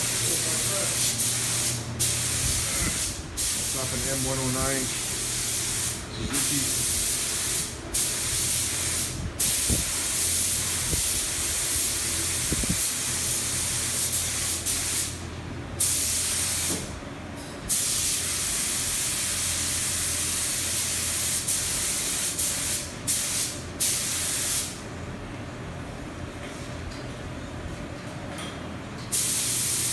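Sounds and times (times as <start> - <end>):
paint spray hissing: 0.0 - 15.2, 17.7 - 24.7, 29.1 - 29.9.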